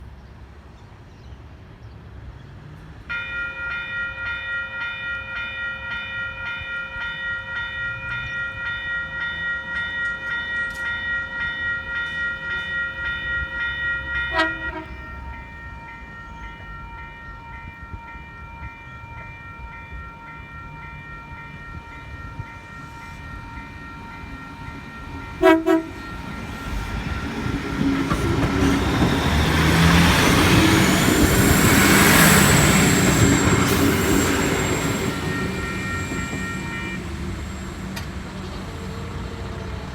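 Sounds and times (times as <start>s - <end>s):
diesel train engine and wheels: 0.0s - 39.9s
level crossing bells ringing: 3.1s - 37.8s
train horn blasts: 14.2s - 15.5s, 25.2s - 27.2s, 34.5s - 37.2s.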